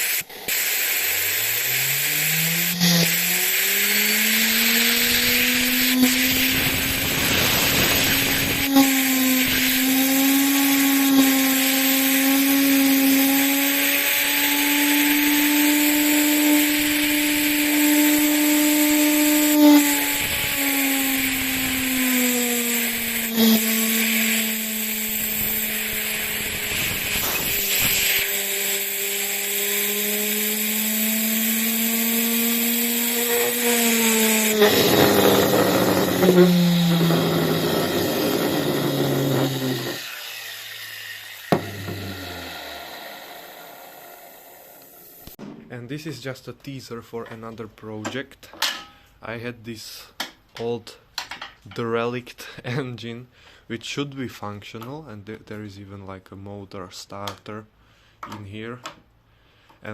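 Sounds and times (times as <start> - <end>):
turbine whine: 0.0 - 45.4
air jet hiss: 3.0 - 9.6, 19.5 - 28.4.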